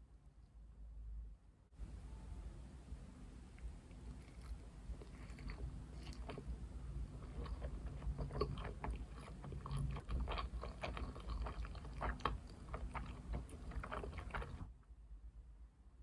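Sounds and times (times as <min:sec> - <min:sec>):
low background hum: 0:00.0 - 0:16.0
wet chewing clicks and smacks: 0:03.9 - 0:14.7.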